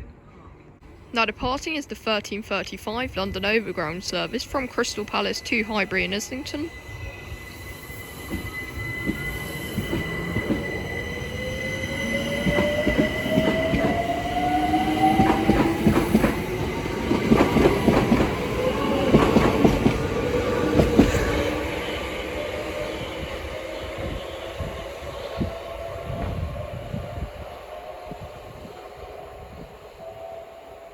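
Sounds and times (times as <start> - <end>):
electric train motors whining: 3.3 - 30.9.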